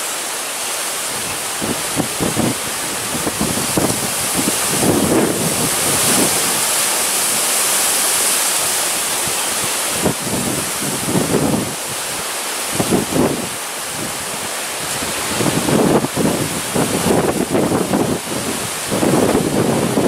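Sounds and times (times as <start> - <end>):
strong gusting wind: 0.8 - 20.0
wind buffeting microphone: 1.1 - 7.4, 8.6 - 20.0.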